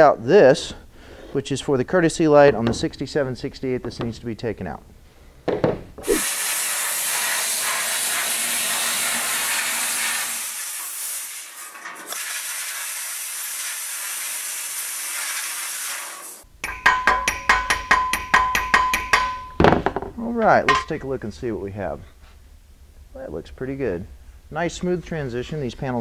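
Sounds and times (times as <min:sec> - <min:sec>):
media blaster hissing: 0:06.0 - 0:11.6
hammer striking steel: 0:16.6 - 0:20.0, 0:20.7 - 0:21.0.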